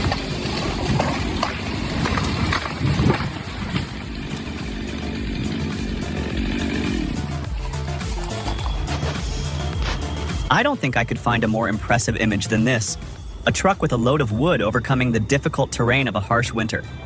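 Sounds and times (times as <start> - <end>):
knocks and clatters: 0.0 - 6.0
engine running: 0.0 - 17.0.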